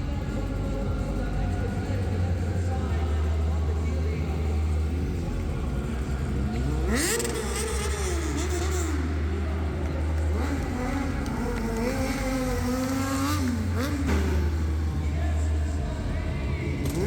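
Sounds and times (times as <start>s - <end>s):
motorcycle engine revving: 0.0s - 17.0s
steady low hum: 0.0s - 17.0s.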